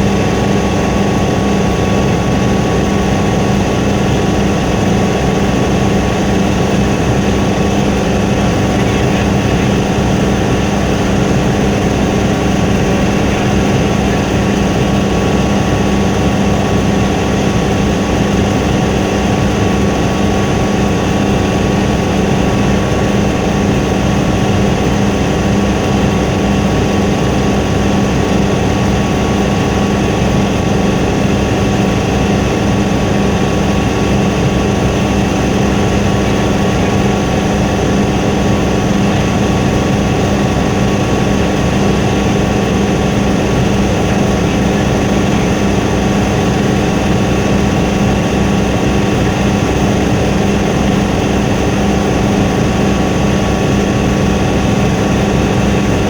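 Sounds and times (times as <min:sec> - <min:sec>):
helicopter engine and rotor drone: 0:00.0 - 0:56.0.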